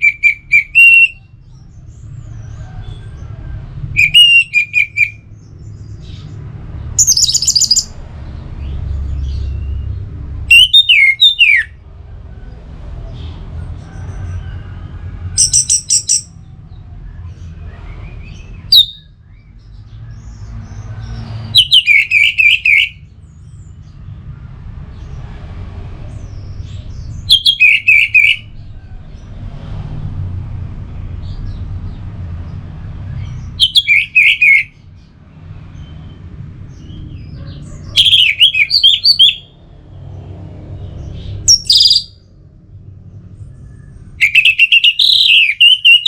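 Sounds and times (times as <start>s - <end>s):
thrush singing: 0.0s - 1.2s, 10.5s - 11.7s, 27.3s - 28.5s, 37.9s - 39.5s.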